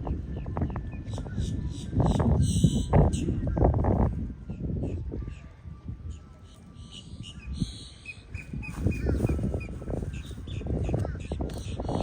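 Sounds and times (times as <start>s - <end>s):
birds chirping: 6.8s - 12.0s
rough rustling noise: 8.4s - 10.5s.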